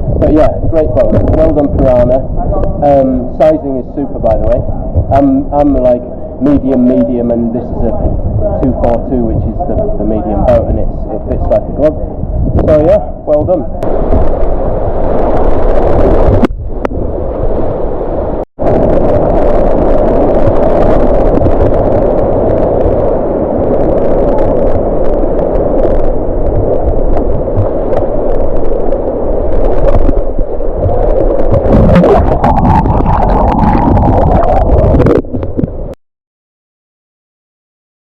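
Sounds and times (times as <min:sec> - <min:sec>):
wind rumbling on microphone: 0:00.0 - 0:36.0
rushing white water: 0:17.3 - 0:35.8.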